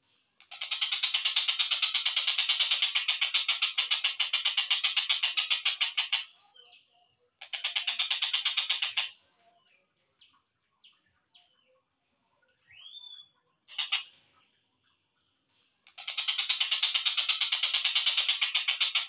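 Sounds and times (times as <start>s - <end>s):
bird chirps: 4.5s - 15.0s.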